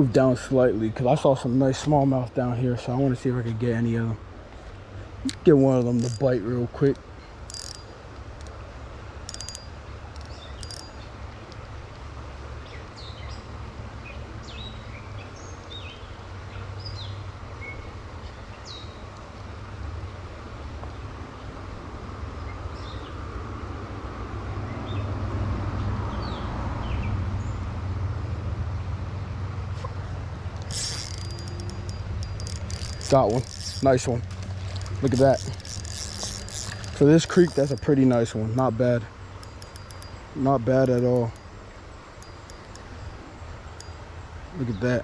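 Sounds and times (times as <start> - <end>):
sharp clicks: 6.9 - 8.6, 9.3 - 11.6, 30.5 - 38.7, 39.3 - 41.5, 42.2 - 43.2.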